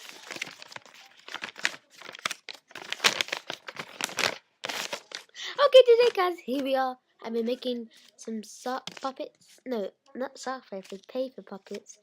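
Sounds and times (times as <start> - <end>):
paper crinkling and rustling: 0.0 - 6.7, 7.9 - 9.6, 10.4 - 12.0.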